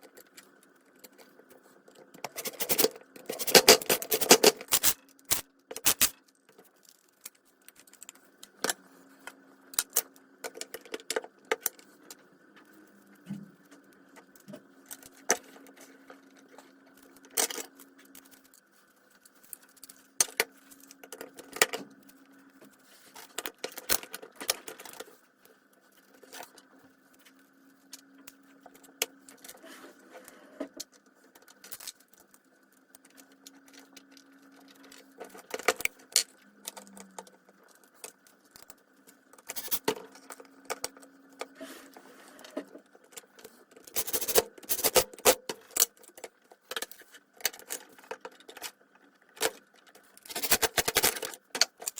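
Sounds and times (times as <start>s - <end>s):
faint steady hum: 0.0s - 51.9s
metal parts and tools clinking: 2.2s - 6.2s, 39.4s - 40.0s, 43.9s - 46.0s, 50.2s - 51.9s.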